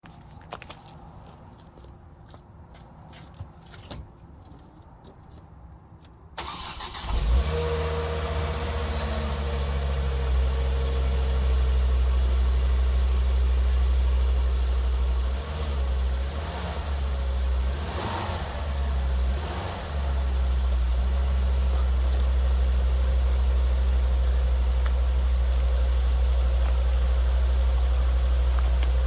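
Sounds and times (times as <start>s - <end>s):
car engine starting and idling: 6.4s - 29.0s.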